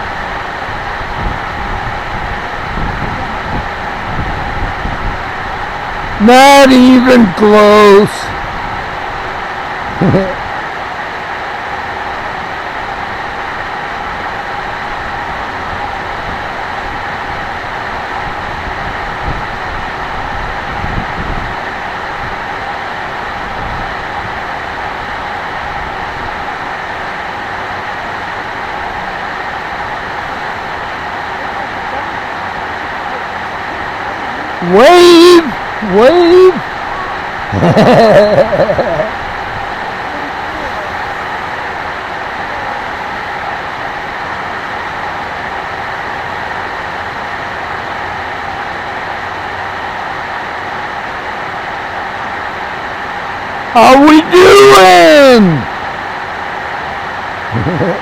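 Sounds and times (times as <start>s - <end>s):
drone propellers whirring: 0.0s - 6.2s, 35.5s - 45.2s
wind buffeting microphone: 0.0s - 6.2s, 12.8s - 26.6s, 38.6s - 44.3s
steady rushing hiss: 0.0s - 58.0s.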